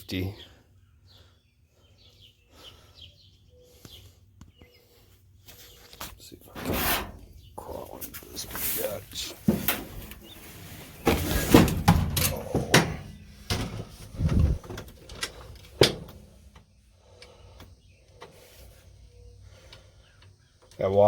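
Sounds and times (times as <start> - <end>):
shuffling: 5.4 - 16.4.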